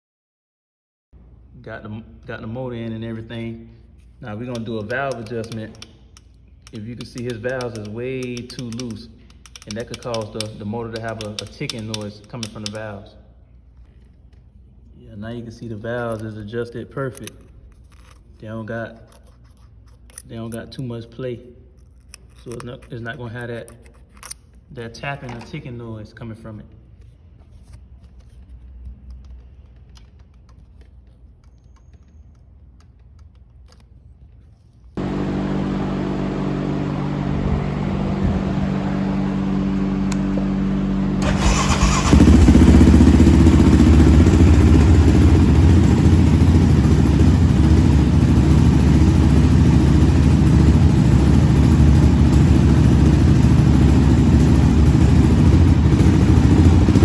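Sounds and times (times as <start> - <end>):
single-cylinder engine running: 35.0 - 57.0.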